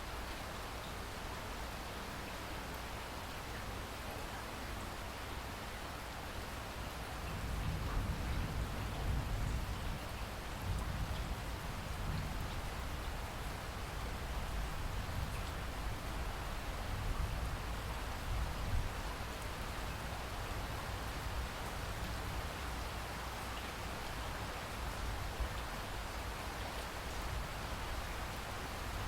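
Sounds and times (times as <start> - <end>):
steady rain hiss: 0.0 - 29.0
scattered raindrops: 6.3 - 29.0.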